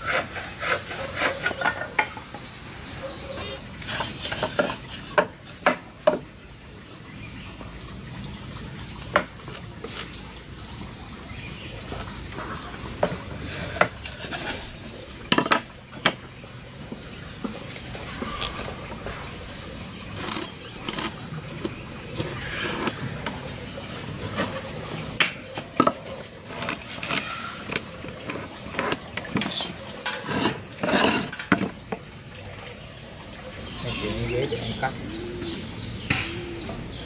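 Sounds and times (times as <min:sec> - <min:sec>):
high insect drone: 0:00.0 - 0:37.0
wood and hand tools knocking: 0:03.9 - 0:06.3, 0:09.1 - 0:10.0, 0:15.3 - 0:16.3, 0:24.3 - 0:32.1.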